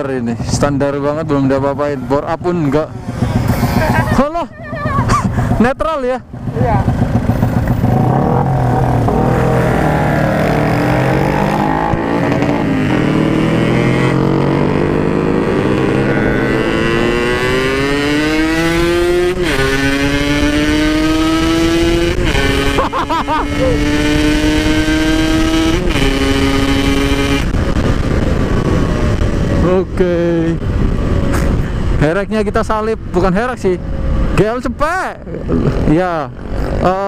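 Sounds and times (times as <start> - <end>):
motorcycle accelerating: 0.0 - 37.0
wind rumble on microphone: 23.4 - 36.9.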